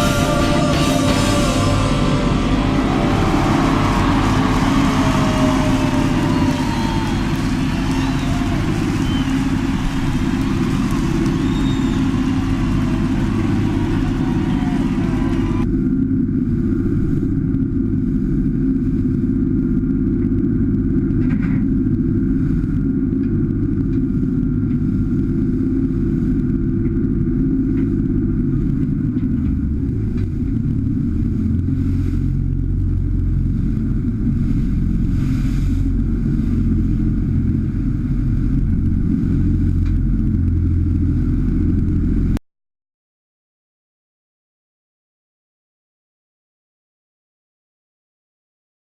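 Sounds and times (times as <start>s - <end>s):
boat engine rumbling: 0.0s - 42.4s
wind on microphone: 0.0s - 42.4s.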